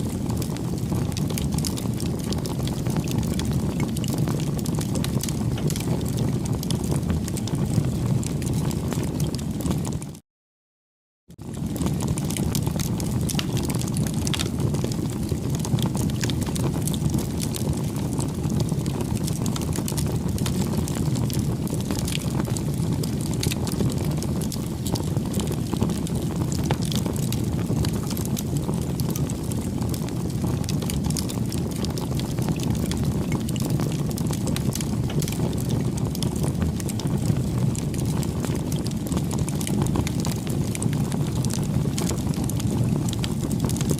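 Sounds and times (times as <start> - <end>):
burning wood crackling: 0.0 - 10.0, 11.4 - 43.9
flames rushing: 0.0 - 10.0, 11.4 - 43.9.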